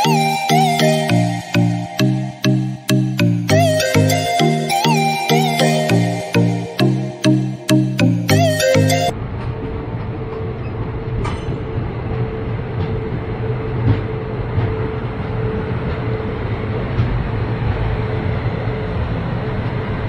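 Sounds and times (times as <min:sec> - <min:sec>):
train wheels rumbling on rails: 0:09.2 - 0:20.0.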